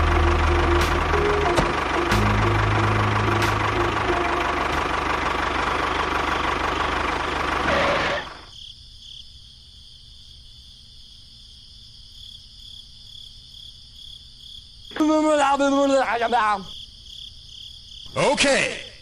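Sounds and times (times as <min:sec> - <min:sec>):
crickets chirping: 0:08.2 - 0:19.0.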